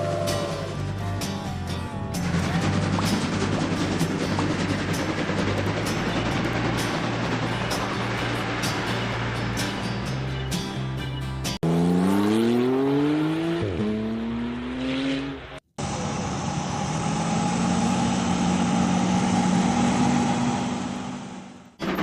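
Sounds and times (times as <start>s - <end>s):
steady engine drone: 0.0s - 10.5s, 15.8s - 22.0s
drum-backed music: 0.0s - 11.6s
car engine accelerating: 11.6s - 22.0s.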